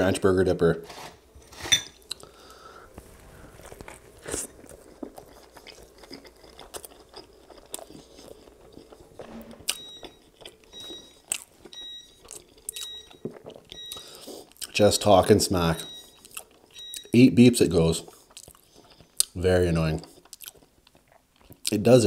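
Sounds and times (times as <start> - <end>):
biting and chewing a burger: 2.0 - 14.8, 20.0 - 21.9
ice maker beeping: 9.2 - 16.2.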